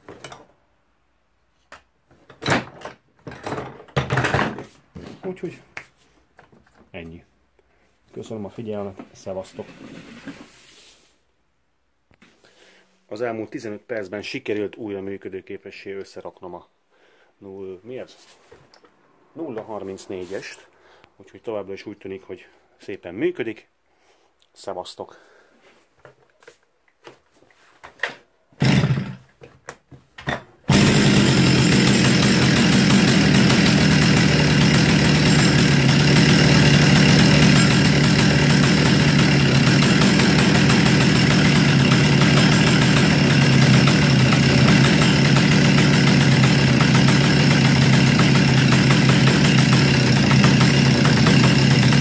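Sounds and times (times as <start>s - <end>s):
chainsaw engine idling: 28.6s - 29.2s, 30.7s - 52.0s.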